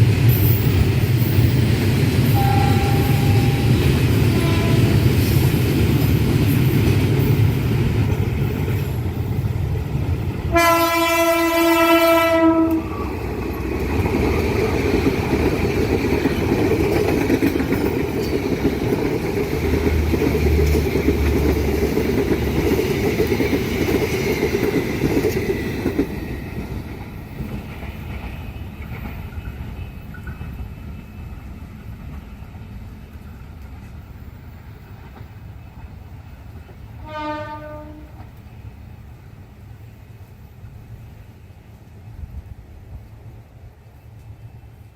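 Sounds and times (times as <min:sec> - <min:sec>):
train passing rumble: 0:00.0 - 0:44.9
locomotive horn: 0:02.3 - 0:05.3, 0:10.5 - 0:13.1, 0:37.0 - 0:38.2.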